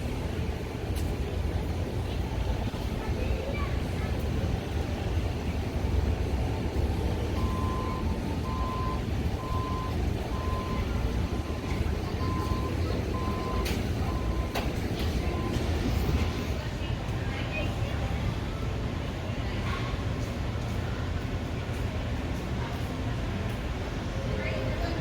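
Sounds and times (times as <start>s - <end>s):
reversing alarm beeping: 7.1s - 16.6s.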